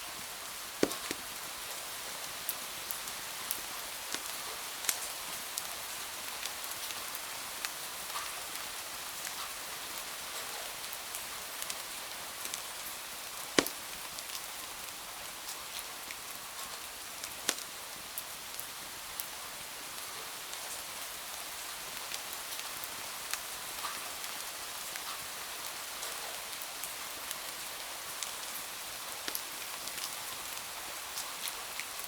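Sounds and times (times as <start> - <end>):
steady rain hiss: 0.0 - 32.0
wood fire crackling: 0.7 - 6.5, 11.6 - 14.6, 17.2 - 17.8, 28.2 - 30.6.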